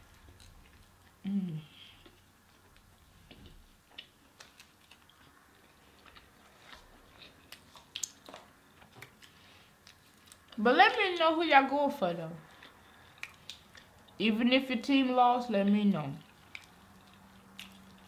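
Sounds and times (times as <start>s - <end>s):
chewing: 0.0s - 10.6s, 12.4s - 14.2s, 16.2s - 18.0s.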